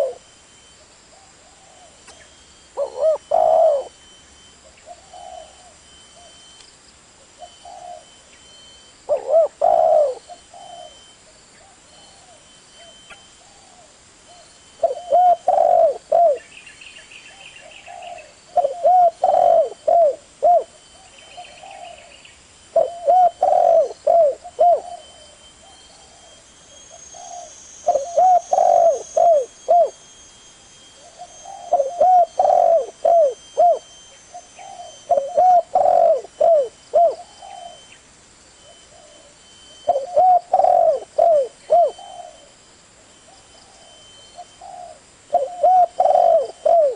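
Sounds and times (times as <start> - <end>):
dove cooing: 0.0 - 6.5, 7.2 - 8.2, 9.1 - 16.5, 17.3 - 30.0, 31.0 - 38.0, 38.6 - 42.6, 43.3 - 46.9
small bird chirping: 1.1 - 6.7, 7.4 - 42.6, 43.2 - 46.9.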